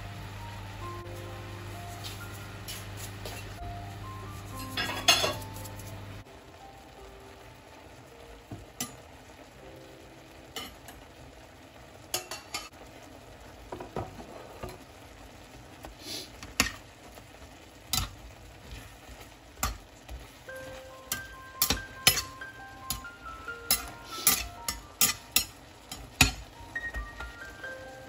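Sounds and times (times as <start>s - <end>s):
mushrooms sizzling in a frying pan: 0.0s - 28.0s.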